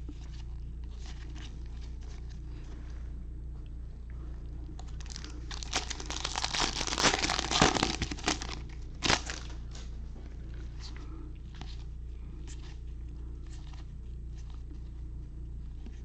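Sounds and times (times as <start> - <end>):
foil wrapper crinkling: 5.0 - 9.9.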